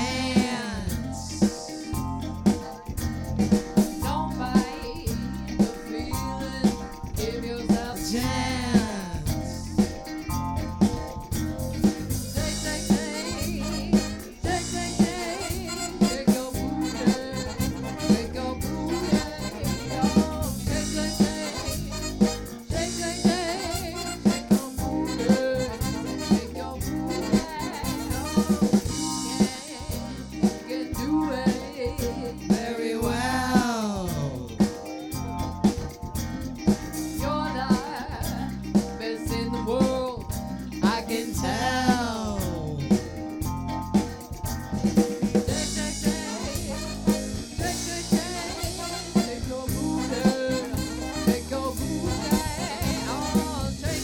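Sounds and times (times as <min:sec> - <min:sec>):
person singing: 0:00.0 - 0:01.9, 0:04.0 - 0:09.9, 0:12.3 - 0:35.0, 0:37.1 - 0:43.3, 0:45.4 - 0:54.0
live band music: 0:00.0 - 0:54.0.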